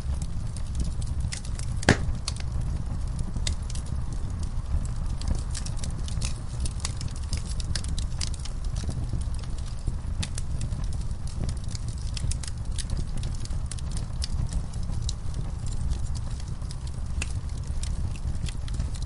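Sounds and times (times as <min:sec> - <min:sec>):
wood fire crackling: 0:00.0 - 0:19.0
loud fire pop: 0:01.8 - 0:02.4.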